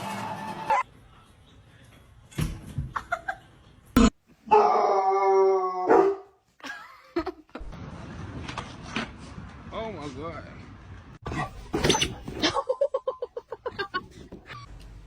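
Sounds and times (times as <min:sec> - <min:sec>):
dog yelping: 0:05.8 - 0:06.3.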